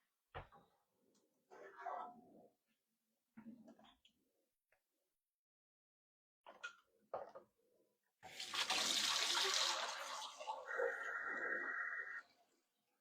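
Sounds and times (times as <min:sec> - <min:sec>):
water running from tap: 0:08.3 - 0:11.3.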